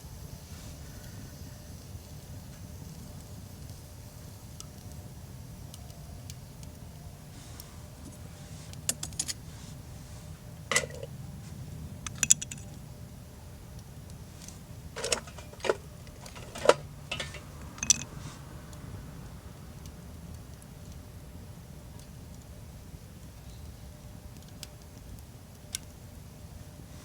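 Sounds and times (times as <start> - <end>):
metal cookware clinking: 10.7 - 11.1, 12.1 - 12.6, 14.4 - 18.1.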